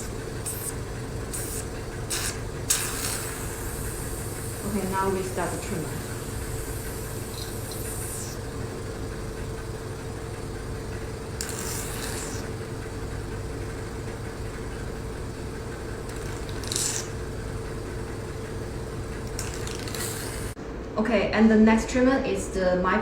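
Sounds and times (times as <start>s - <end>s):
suction hiss: 0.0s - 8.6s, 11.4s - 12.6s, 16.1s - 17.2s, 19.4s - 20.6s
vacuum pump humming: 0.0s - 20.6s.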